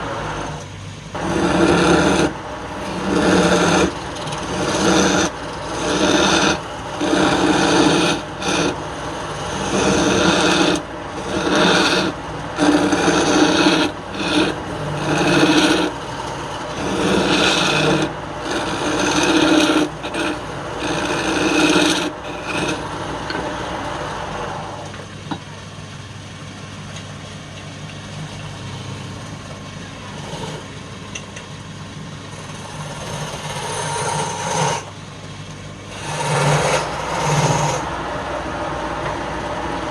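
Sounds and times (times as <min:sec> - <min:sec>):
tool rasping on spinning wood: 0:00.0 - 0:24.4, 0:30.0 - 0:30.8, 0:32.3 - 0:35.0, 0:35.8 - 0:38.4
wood lathe motor running: 0:00.0 - 0:24.8, 0:30.1 - 0:30.8, 0:32.3 - 0:35.0, 0:35.8 - 0:39.9.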